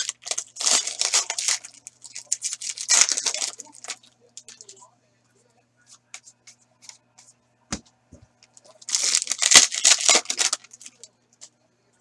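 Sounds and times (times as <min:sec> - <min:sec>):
wrapper tearing and crinkling: 0:00.0 - 0:04.7, 0:08.8 - 0:11.1
cards clicking when handled: 0:08.5 - 0:11.5.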